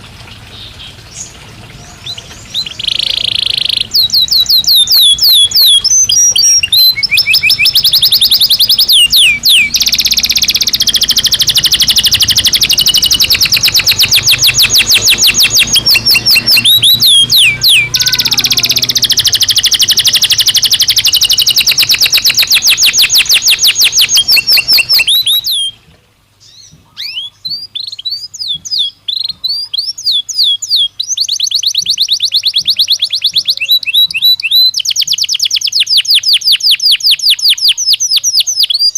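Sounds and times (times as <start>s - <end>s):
canary singing trills: 0.0s - 25.8s, 26.4s - 38.9s.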